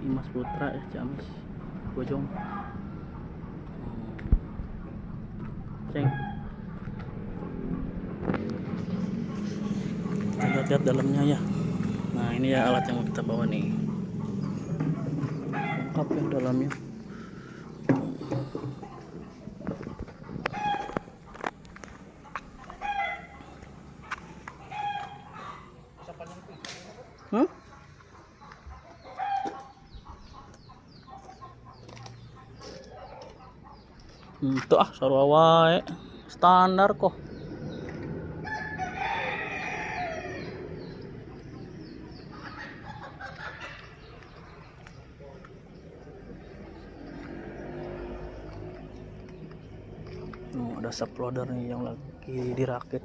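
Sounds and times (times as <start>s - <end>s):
chicken calling: 5.8s - 34.6s, 37.3s - 49.5s
rooster crowing: 6.0s - 6.7s, 9.3s - 12.0s, 12.6s - 16.0s, 22.6s - 23.6s, 24.6s - 25.7s, 38.3s - 40.9s
sharp knocks: 17.8s - 19.0s.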